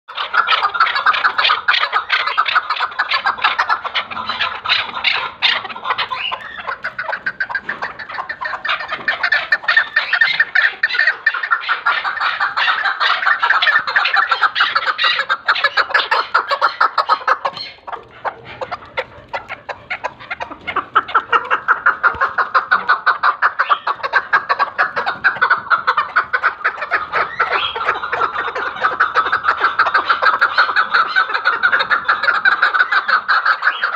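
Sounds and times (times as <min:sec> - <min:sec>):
partridge clucking: 0:00.1 - 0:33.9.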